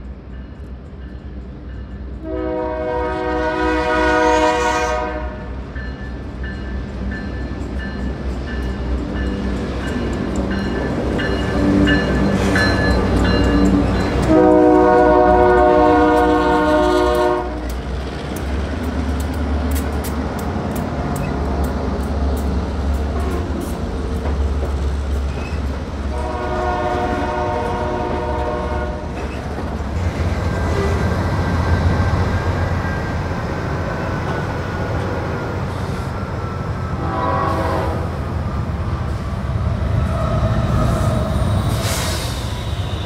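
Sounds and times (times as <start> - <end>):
train air horn blasts: 2.2 - 5.5, 14.2 - 17.7, 26.1 - 29.1, 37.0 - 38.3
train wheels clicking over rail joints: 5.8 - 14.4, 17.0 - 26.2, 29.0 - 33.1.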